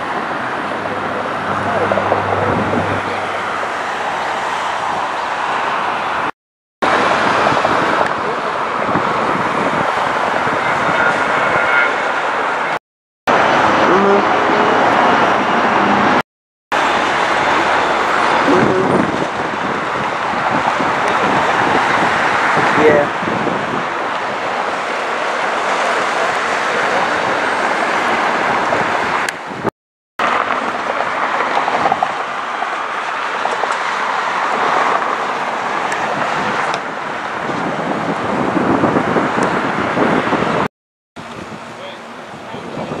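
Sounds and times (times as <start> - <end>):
jet engine roar: 0.0 - 16.2.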